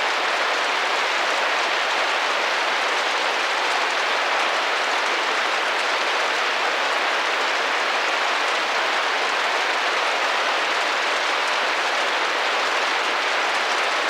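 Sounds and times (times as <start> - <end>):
rain pattering on window: 0.0 - 14.0.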